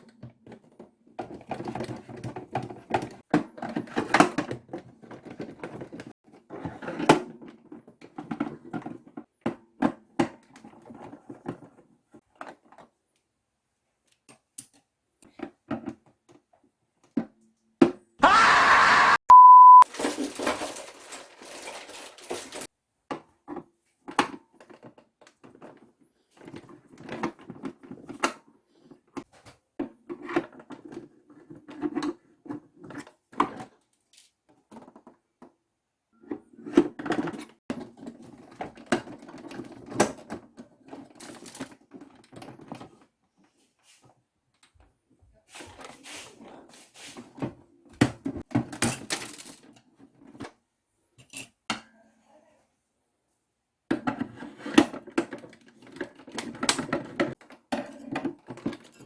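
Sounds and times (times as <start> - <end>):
plastic toy clicking and clattering: 36.9 - 43.0, 48.4 - 50.5.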